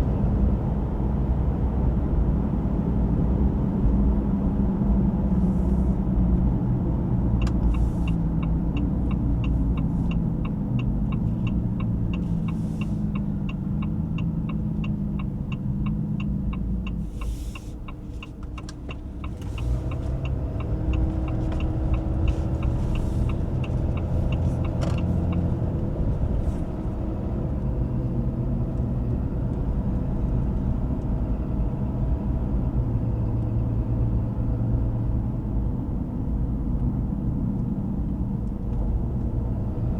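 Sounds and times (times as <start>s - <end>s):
diesel truck engine pulling: 7.5s - 29.5s.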